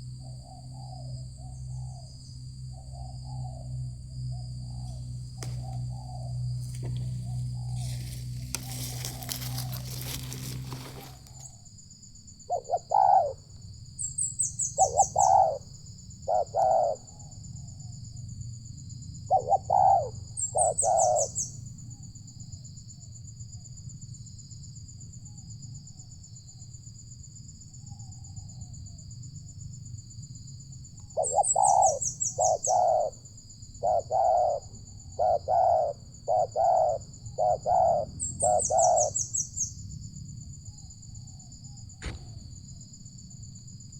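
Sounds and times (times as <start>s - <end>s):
insect buzzing and trilling: 0.0s - 43.9s
dove cooing: 4.7s - 11.5s, 12.5s - 13.5s, 14.6s - 17.3s, 19.3s - 21.4s, 31.1s - 33.2s, 33.8s - 39.5s.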